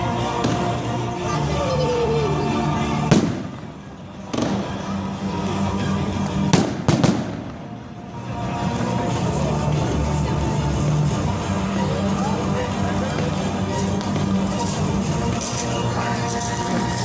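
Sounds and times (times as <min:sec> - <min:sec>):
background music: 0:00.0 - 0:17.0
fireworks bangs: 0:03.1 - 0:04.8, 0:06.5 - 0:07.8.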